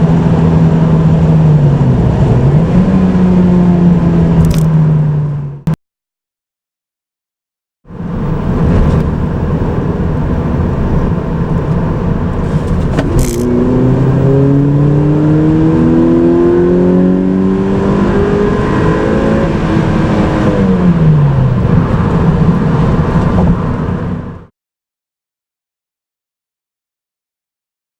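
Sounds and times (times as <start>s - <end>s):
car engine revving: 0.0s - 5.8s, 8.0s - 24.5s
sharp click: 4.4s - 4.8s, 12.7s - 13.5s.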